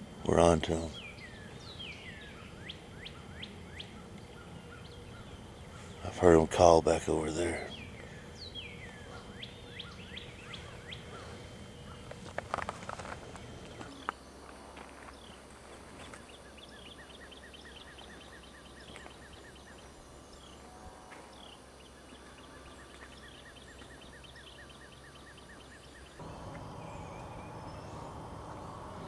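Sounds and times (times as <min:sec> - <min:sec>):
scattered bird calls: 0:00.3 - 0:14.4, 0:15.0 - 0:29.0
rapid repeated bird chirps: 0:07.3 - 0:12.1, 0:22.2 - 0:29.0
loud low noise: 0:26.2 - 0:29.0.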